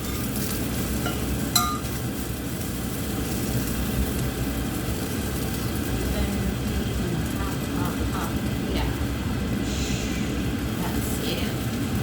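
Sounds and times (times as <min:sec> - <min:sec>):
low kitchen rumble: 0:00.0 - 0:12.0
metal utensil clinking on pan: 0:01.0 - 0:02.0.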